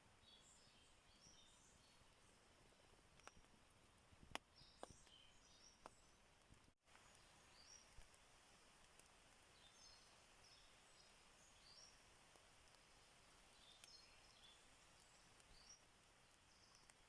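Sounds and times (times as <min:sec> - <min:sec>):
background hiss: 0:00.0 - 0:17.0
faint bird chirps: 0:00.2 - 0:02.5, 0:04.5 - 0:06.2, 0:06.9 - 0:08.0, 0:09.5 - 0:12.1, 0:12.7 - 0:17.0.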